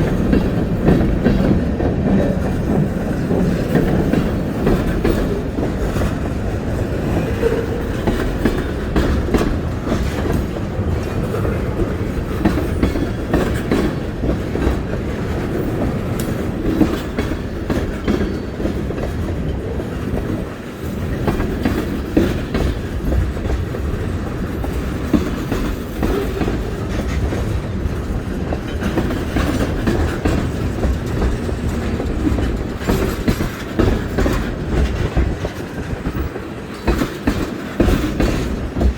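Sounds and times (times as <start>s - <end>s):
train cars rumbling past: 0.0s - 38.9s
wheels clacking over rail joints: 0.0s - 38.9s.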